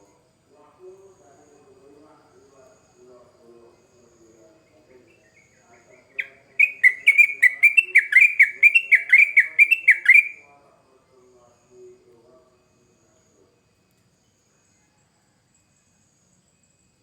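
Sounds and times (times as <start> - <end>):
bird singing bubbly notes: 6.2 - 10.4.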